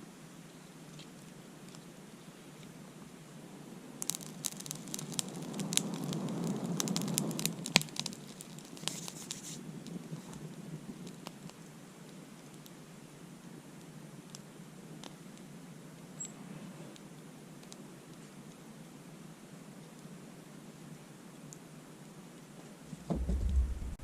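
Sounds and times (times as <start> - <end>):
burning wood crackling and snapping: 0.5 - 3.1, 3.9 - 18.9.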